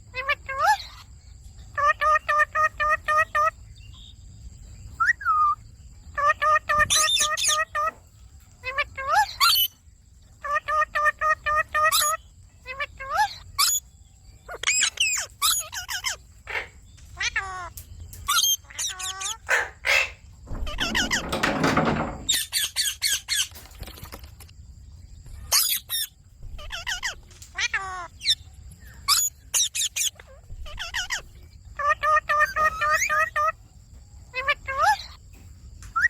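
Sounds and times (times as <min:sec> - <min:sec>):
parakeets squawking and chattering: 0:00.0 - 0:24.5, 0:25.1 - 0:36.0
long rough parakeet call: 0:18.4 - 0:21.2.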